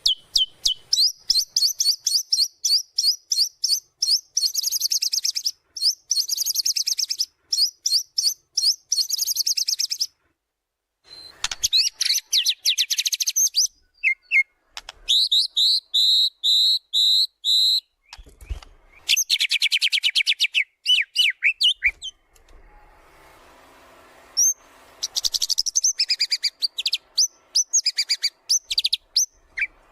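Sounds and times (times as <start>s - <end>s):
bird whistled notes: 0.0s - 10.1s, 11.1s - 22.2s, 24.4s - 29.9s
songbird rattling trills: 24.4s - 29.7s.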